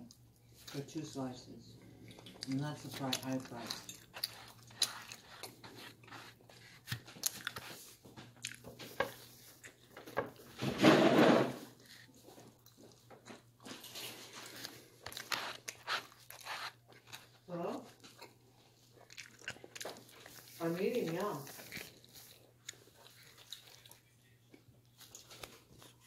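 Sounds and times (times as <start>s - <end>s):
person chewing pizza: 1.8s - 10.5s, 11.7s - 26.0s.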